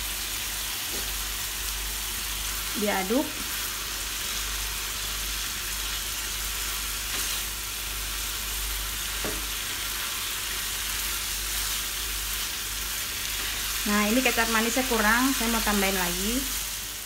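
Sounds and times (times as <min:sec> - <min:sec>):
food sizzling in a frying pan: 0:00.0 - 0:17.0
spatula knocking on pan: 0:09.2 - 0:09.5.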